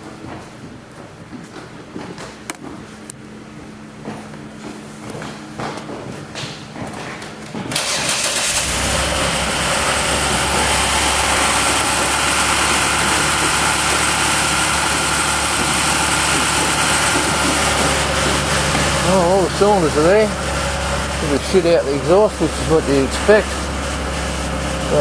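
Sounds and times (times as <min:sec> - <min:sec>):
car engine starting and idling: 0:07.7 - 0:25.0.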